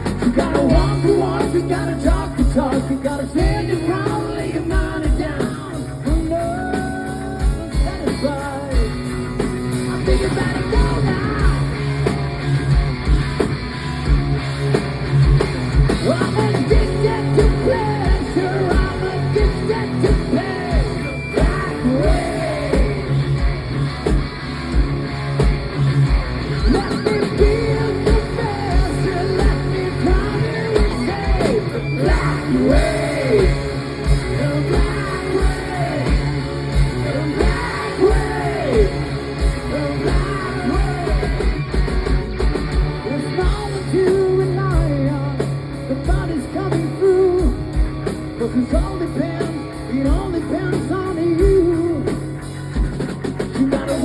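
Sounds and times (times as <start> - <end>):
person singing: 0.0 - 11.8, 16.0 - 23.3, 26.6 - 41.5
hard rock band playing: 0.0 - 54.0.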